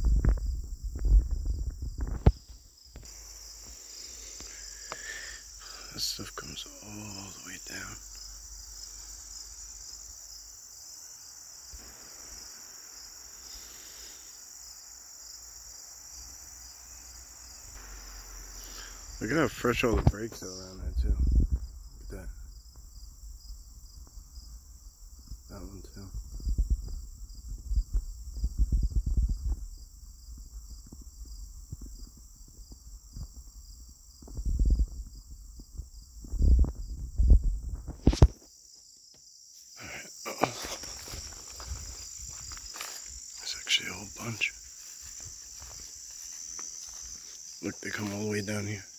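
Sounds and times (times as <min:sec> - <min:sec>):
insects chirring: 0:00.0 - 0:48.9
faint rustle: 0:39.5 - 0:48.9
dull footsteps: 0:40.3 - 0:48.9.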